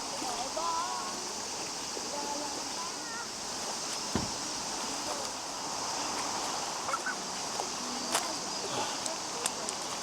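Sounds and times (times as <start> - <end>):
mountain stream rushing: 0.0 - 10.0
short thump: 4.1 - 4.4.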